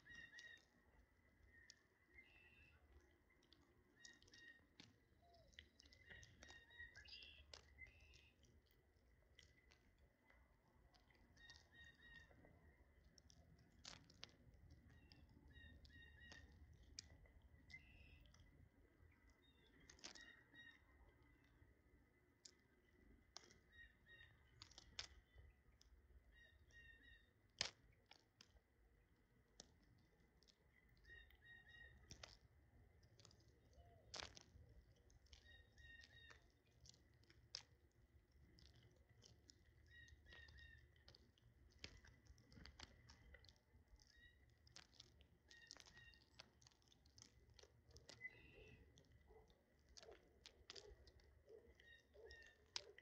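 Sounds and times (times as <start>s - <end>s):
birds pecking at food: 0.0s - 53.0s
high bird chirps: 5.2s - 8.3s, 48.2s - 48.8s.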